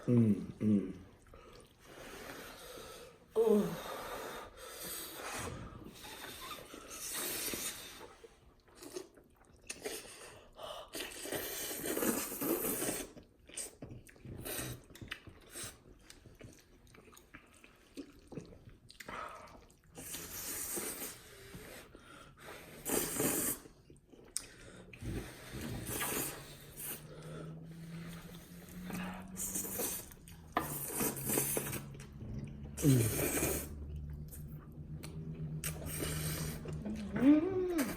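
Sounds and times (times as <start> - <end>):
slurping noodles: 1.5 - 37.9
open-mouthed chewing: 6.0 - 37.9.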